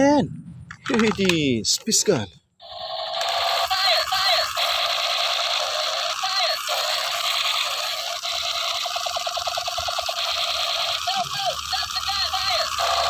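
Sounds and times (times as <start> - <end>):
toy gun electronic buzzing: 2.6 - 13.0.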